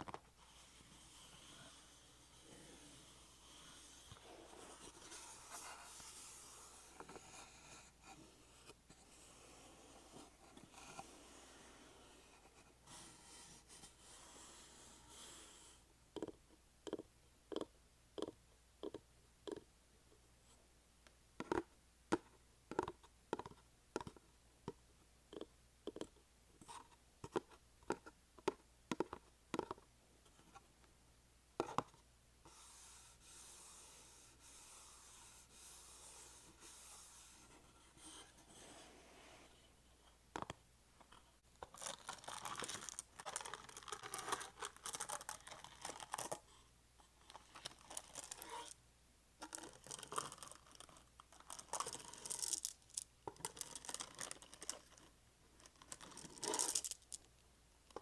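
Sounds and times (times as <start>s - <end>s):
soft scratchy rubbing: 0.4s - 15.1s, 32.5s - 40.1s
soft hissy rustling: 3.6s - 15.8s.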